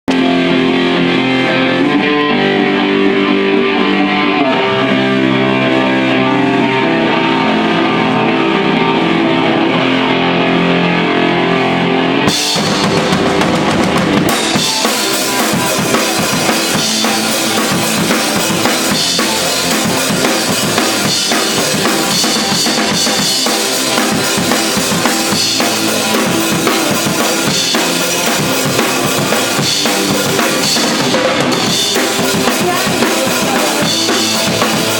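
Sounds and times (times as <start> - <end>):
band playing live: 0.0 - 34.9
drums and cymbals: 12.3 - 34.9.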